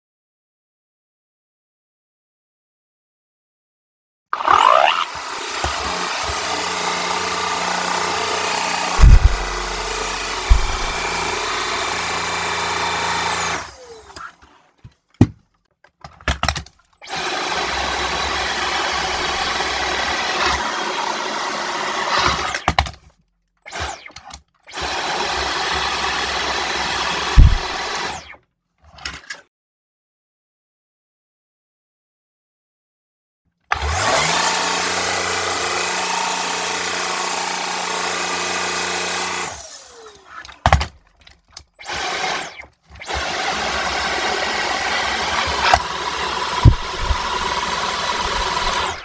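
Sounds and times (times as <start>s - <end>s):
stick vacuum whining: 4.4s - 15.3s, 16.0s - 23.0s, 23.7s - 28.4s, 33.7s - 49.0s
loud thumps: 8.9s - 11.3s, 27.3s - 27.9s, 46.6s - 49.0s.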